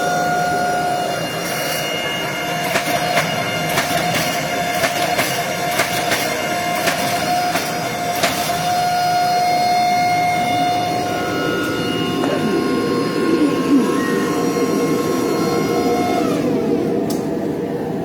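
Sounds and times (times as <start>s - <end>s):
hydraulic pump whine: 0.0s - 18.0s
machine noise: 0.0s - 18.0s
sharp metallic clicks and knocks: 2.6s - 8.6s.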